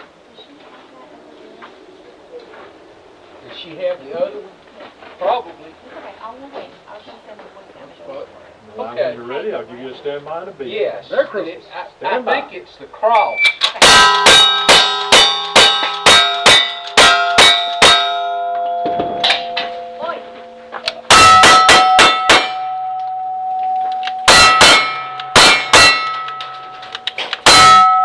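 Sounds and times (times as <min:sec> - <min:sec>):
steel targets ringing: 0:13.2 - 0:28.0
gunshots: 0:20.8 - 0:22.7, 0:24.2 - 0:27.8.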